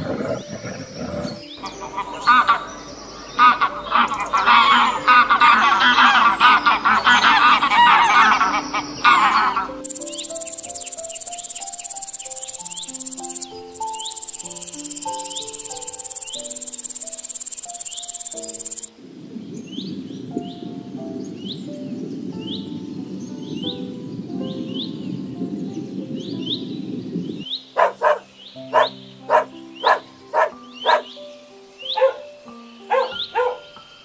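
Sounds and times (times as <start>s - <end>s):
geese honking: 1.6s - 18.9s
bush cricket buzzing: 9.8s - 18.9s.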